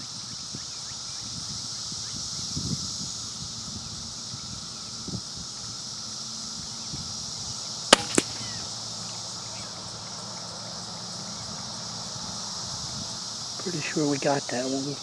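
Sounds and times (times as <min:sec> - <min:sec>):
bullet striking target: 0:08.0 - 0:08.7
suppressed rifle crack: 0:08.0 - 0:08.8.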